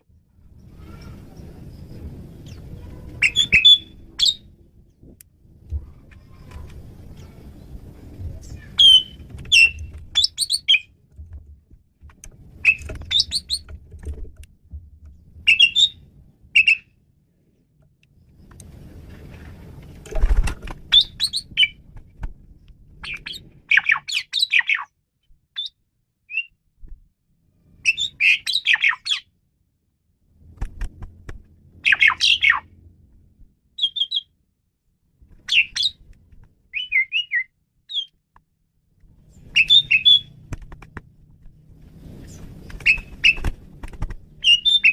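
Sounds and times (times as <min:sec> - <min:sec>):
starling singing: 0:03.2 - 0:04.5, 0:08.4 - 0:10.9, 0:15.5 - 0:16.0, 0:39.5 - 0:40.3, 0:44.4 - 0:44.9.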